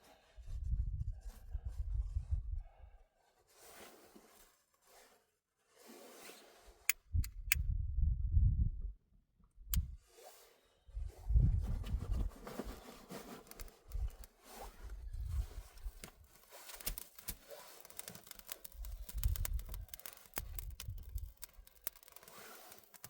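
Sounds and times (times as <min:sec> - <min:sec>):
sharp clicks: 0:16.7 - 0:23.0.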